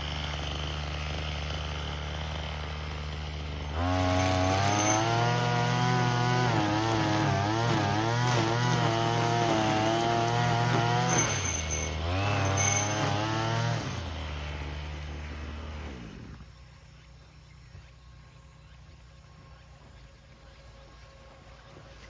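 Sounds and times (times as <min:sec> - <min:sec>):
brush cutter engine: 0:00.0 - 0:16.5.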